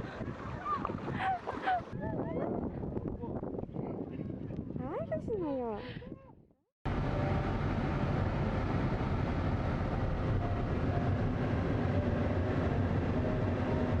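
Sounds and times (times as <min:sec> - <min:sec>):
loud rumbling noise: 0:06.9 - 0:14.0.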